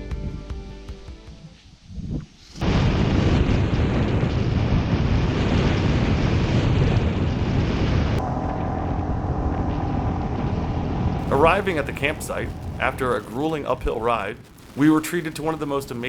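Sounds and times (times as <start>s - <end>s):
wind rushing over microphone: 1.8s - 8.3s, 11.1s - 16.0s.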